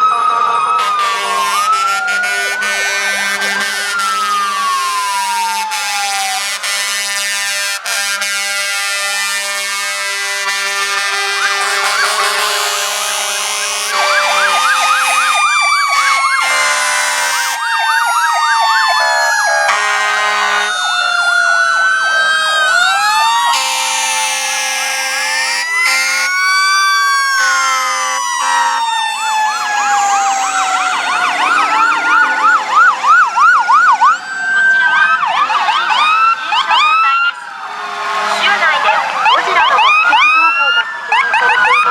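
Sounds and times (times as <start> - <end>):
wailing sirens: 0.0 - 41.9
yelping sirens: 0.0 - 41.9
low horn tones: 0.8 - 4.6, 19.6 - 20.8, 23.5 - 26.4, 27.4 - 28.9, 37.7 - 40.4.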